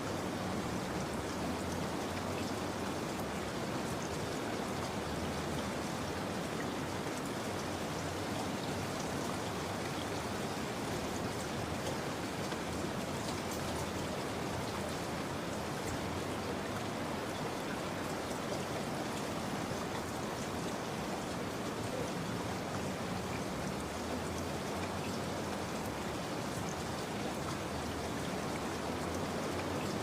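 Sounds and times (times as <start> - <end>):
steady rain patter: 0.0 - 30.0.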